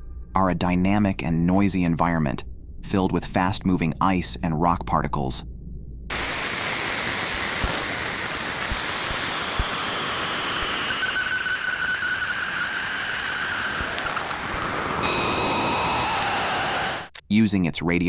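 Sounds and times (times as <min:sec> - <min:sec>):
steady hiss: 0:06.1 - 0:17.2.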